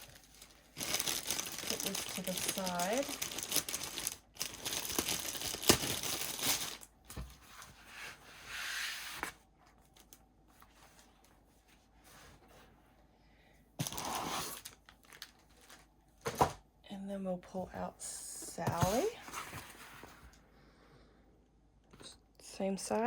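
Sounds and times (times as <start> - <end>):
plastic packaging crinkling: 0.0 - 7.0, 13.8 - 16.4.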